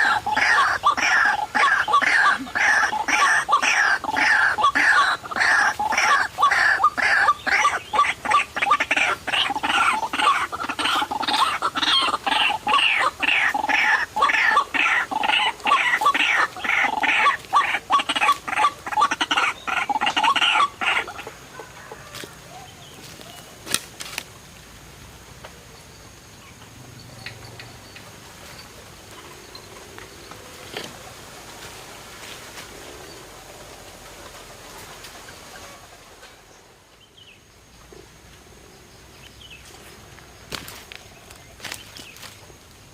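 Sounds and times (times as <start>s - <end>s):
bird calling harsh repeated notes: 0.0s - 21.2s.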